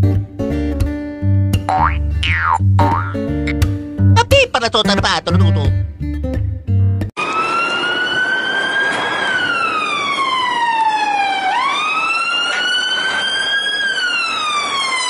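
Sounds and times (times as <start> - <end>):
toy car siren wail: 7.2 - 15.0.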